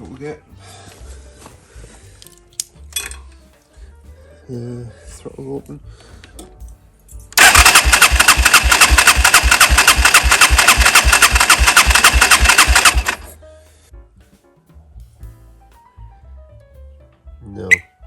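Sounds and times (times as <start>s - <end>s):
electric starter cranking engine: 7.4s - 13.4s.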